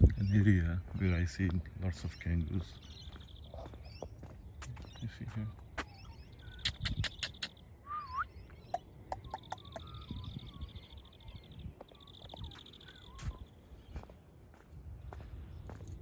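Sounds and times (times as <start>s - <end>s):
bird chirps: 0.0s - 14.2s
bird curling whistle: 5.8s - 11.4s.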